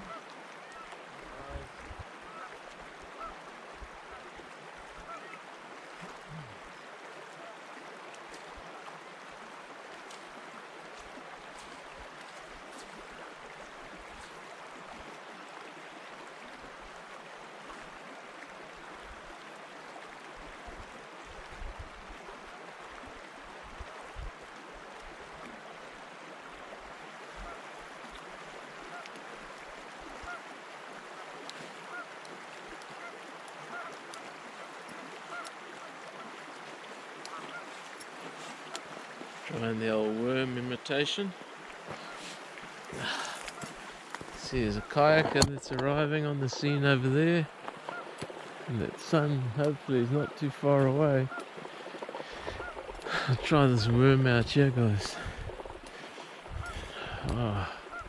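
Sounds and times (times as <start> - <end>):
water lapping at shore: 0.0 - 58.0
wind: 0.0 - 58.0
wind buffeting microphone: 55.2 - 57.4.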